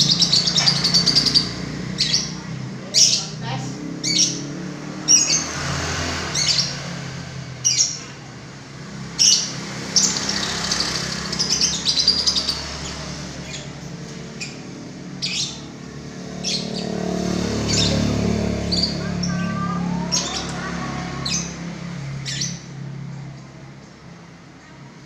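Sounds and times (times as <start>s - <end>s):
songbird chirping: 9.1s - 23.1s.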